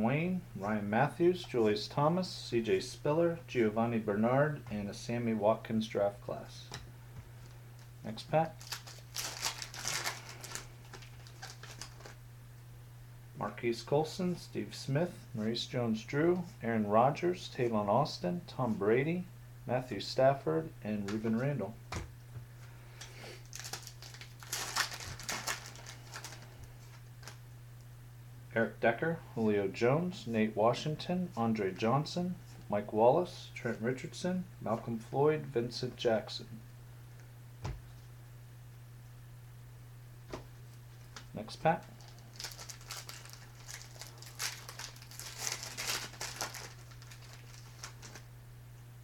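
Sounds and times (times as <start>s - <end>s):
steady electrical hum: 0.0s - 49.0s
foil wrapper tearing and crinkling: 8.6s - 12.2s, 23.4s - 27.4s, 42.0s - 48.3s.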